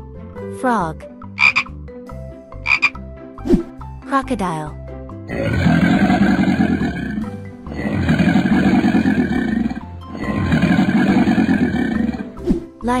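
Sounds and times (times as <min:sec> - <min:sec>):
children's background music: 0:00.0 - 0:13.0
low growling roar: 0:05.3 - 0:12.4.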